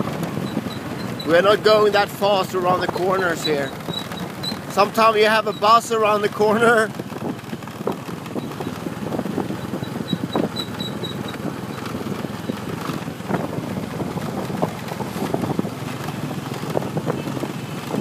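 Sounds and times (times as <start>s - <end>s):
motorbike engine: 0.0s - 18.0s
road and wind noise: 0.0s - 18.0s
small knocks and rattles: 3.6s - 5.5s, 6.9s - 18.0s.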